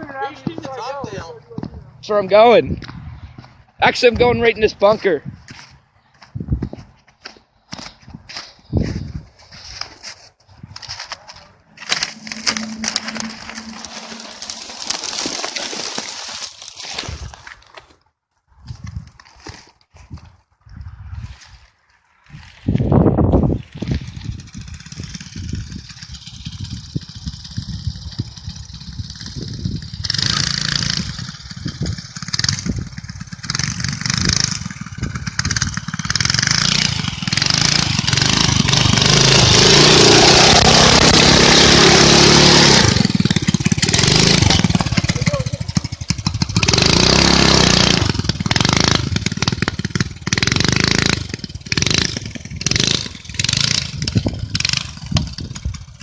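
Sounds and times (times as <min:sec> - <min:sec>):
minibike engine revving: 0:11.8 - 0:17.1, 0:23.5 - 0:56.0.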